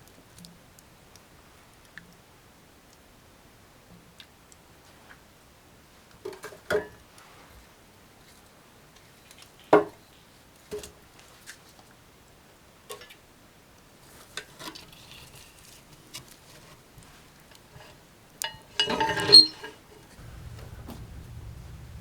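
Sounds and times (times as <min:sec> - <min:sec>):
objects knocking and clicking: 0:17.8 - 0:19.8.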